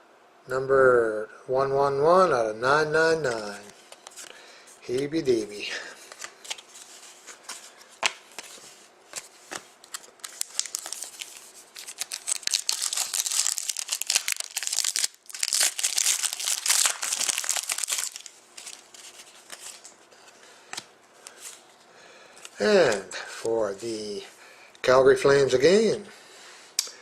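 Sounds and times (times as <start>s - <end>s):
wrapper crinkling and tearing: 9.8s - 20.0s.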